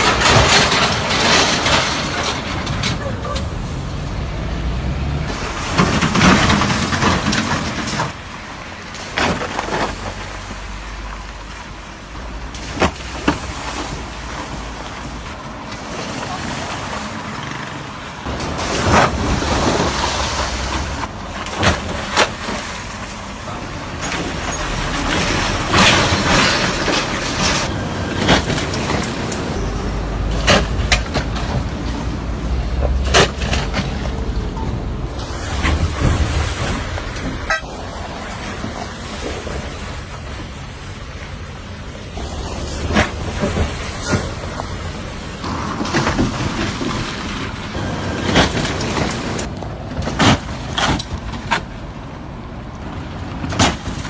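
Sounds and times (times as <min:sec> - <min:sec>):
vehicle engine rumbling: 0:00.0 - 0:54.0
loud rush of noise: 0:09.9 - 0:50.0.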